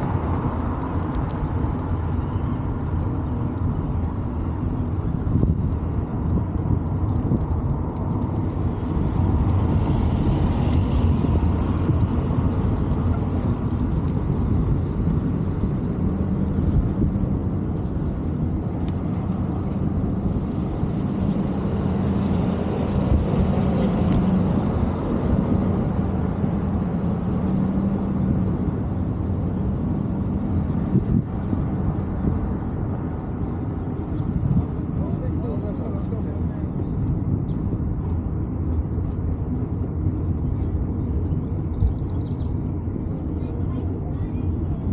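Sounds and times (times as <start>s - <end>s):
faint vehicle hum: 0.0s - 44.9s
wind and road rumble: 0.0s - 44.9s.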